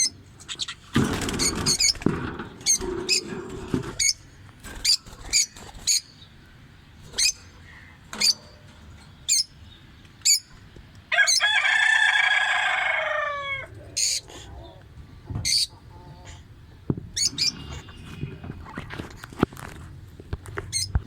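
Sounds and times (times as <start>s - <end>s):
bird chirping: 4.0s - 11.4s, 17.2s - 18.4s
bird crowing call: 11.1s - 14.8s.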